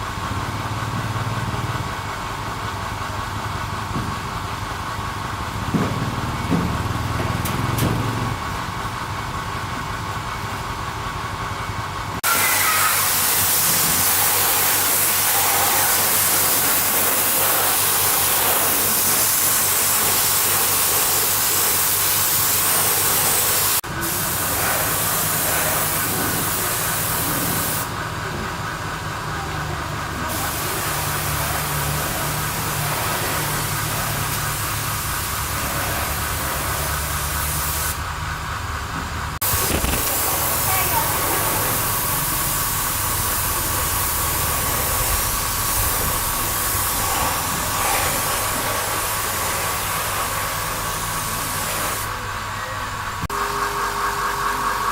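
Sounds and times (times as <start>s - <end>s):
high-pressure spray hissing: 12.2s - 28.0s, 30.2s - 38.0s, 39.4s - 52.2s.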